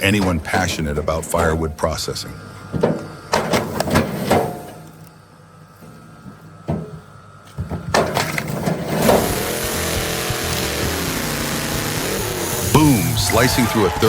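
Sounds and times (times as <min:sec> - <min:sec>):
loud mechanical noise: 0:07.9 - 0:14.0
wood cracking and splitting: 0:09.0 - 0:12.8
log splitter knocking: 0:09.0 - 0:13.4.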